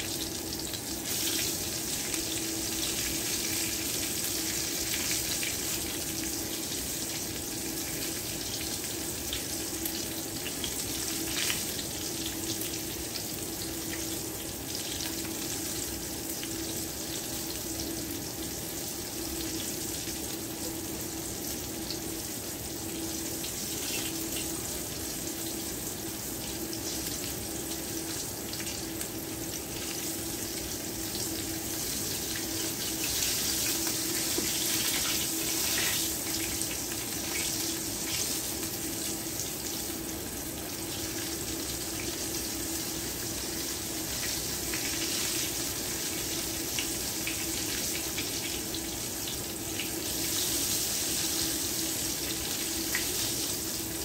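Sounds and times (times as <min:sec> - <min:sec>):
food sizzling in hot oil: 0:00.0 - 0:54.0.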